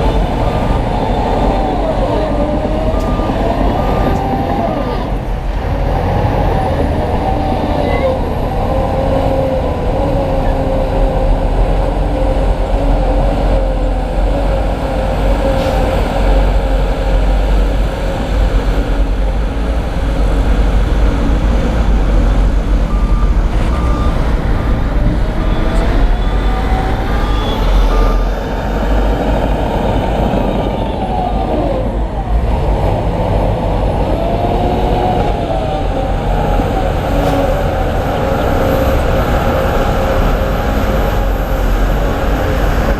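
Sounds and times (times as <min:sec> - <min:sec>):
diesel construction machinery revving: 0:00.0 - 0:42.9
reversing beeper beeps: 0:00.4 - 0:05.0, 0:22.9 - 0:28.7.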